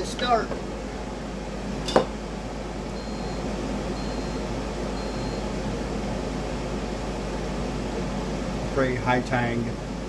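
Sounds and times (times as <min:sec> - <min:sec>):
air fryer fan running: 0:00.0 - 0:10.0
air fryer beeps: 0:02.9 - 0:05.7.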